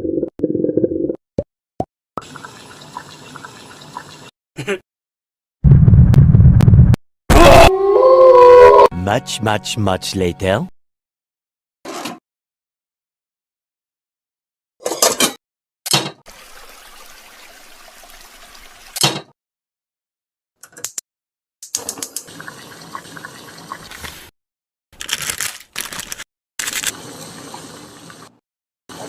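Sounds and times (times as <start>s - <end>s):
water running from a tap: 16.3s - 19.0s, 22.2s - 24.2s.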